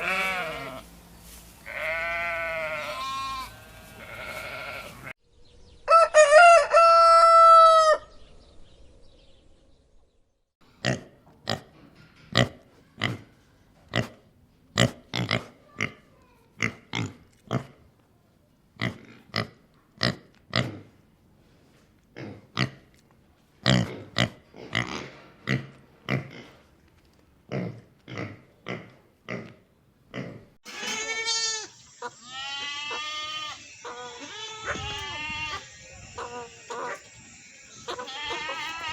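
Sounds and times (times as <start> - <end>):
goat bleating: 0.0 - 0.8, 1.6 - 5.1, 30.7 - 38.9
rooster crowing: 5.9 - 8.1
hen clucking: 30.7 - 38.9.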